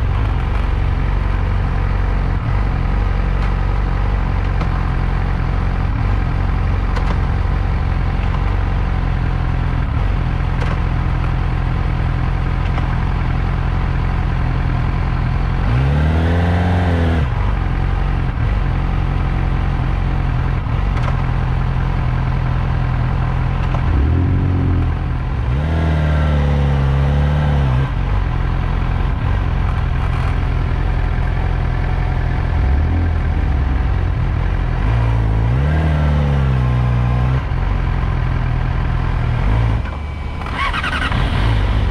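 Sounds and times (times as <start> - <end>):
motorcycle engine revving: 0.0 - 19.0, 19.8 - 41.9.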